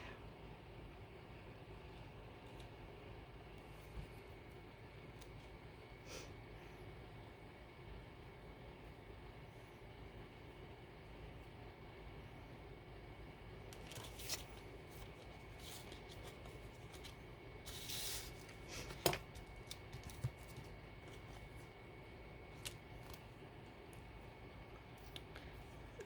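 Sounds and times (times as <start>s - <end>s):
paper rustling: 13.8s - 21.6s.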